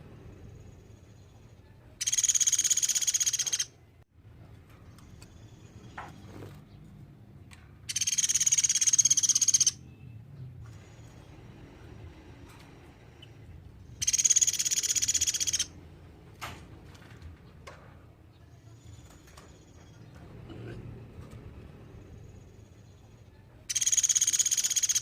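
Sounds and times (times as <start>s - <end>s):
woodpecker high trills: 2.0s - 3.7s, 7.9s - 9.8s, 14.0s - 15.8s, 23.7s - 25.0s.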